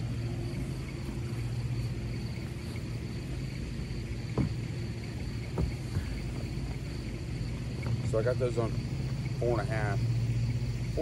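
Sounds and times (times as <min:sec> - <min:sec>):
low background hum: 0:00.0 - 0:11.0
dull knocks on plastic hull: 0:04.3 - 0:04.7, 0:05.5 - 0:06.2.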